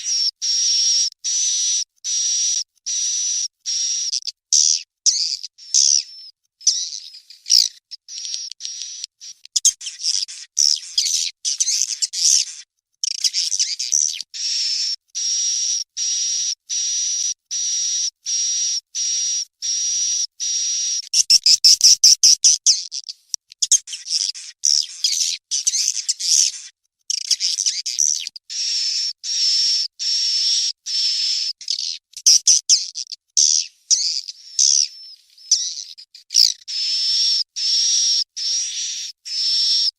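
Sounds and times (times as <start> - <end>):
rapid clicking chirps: 0.0 - 39.9
bird chicks chirping: 4.0 - 12.6, 20.7 - 39.9.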